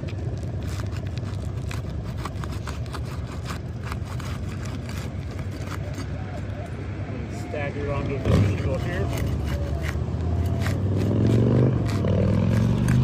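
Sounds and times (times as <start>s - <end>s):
roof shingles scraping and crackling: 0.0s - 6.5s.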